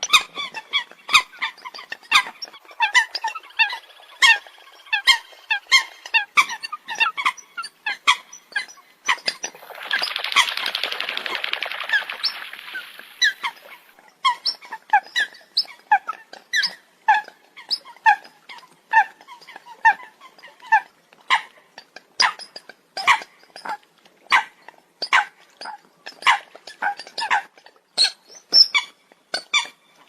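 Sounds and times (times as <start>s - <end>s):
rapid bird chattering: 9.4s - 13.9s.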